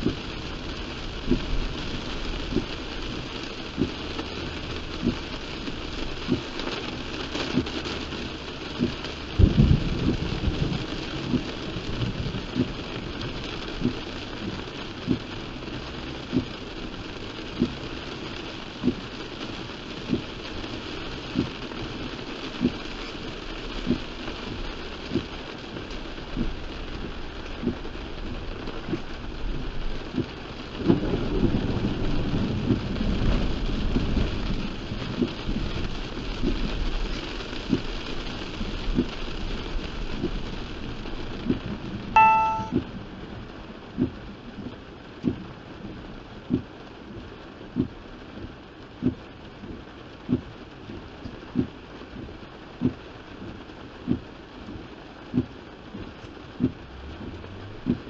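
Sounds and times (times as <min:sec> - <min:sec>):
windshield wipers knocking: 0:00.0 - 0:00.4, 0:01.2 - 0:06.5, 0:07.2 - 0:16.6, 0:17.5 - 0:18.1, 0:18.7 - 0:19.1, 0:21.2 - 0:21.6, 0:22.6 - 0:22.9, 0:23.8 - 0:25.4, 0:26.3 - 0:27.9, 0:28.8 - 0:29.2, 0:30.1 - 0:31.6, 0:32.6 - 0:33.0, 0:35.1 - 0:35.6, 0:37.6 - 0:37.9, 0:38.9 - 0:39.2, 0:44.0 - 0:58.0
heavy rain on car: 0:00.0 - 0:58.0
thunder rumble: 0:09.3 - 0:12.9, 0:30.8 - 0:35.9
short electronic beep: 0:42.2 - 0:42.8.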